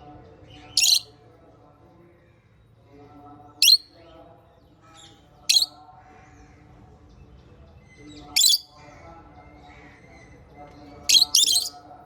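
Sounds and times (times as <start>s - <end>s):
parrots giving shrill calls: 0.8s - 1.1s, 3.6s - 3.8s, 5.5s - 5.7s, 8.4s - 8.7s, 11.1s - 11.7s.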